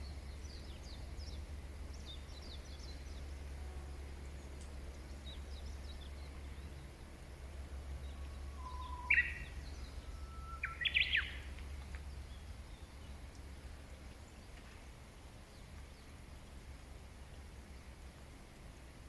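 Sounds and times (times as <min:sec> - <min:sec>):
songbird singing: 0:00.0 - 0:16.2.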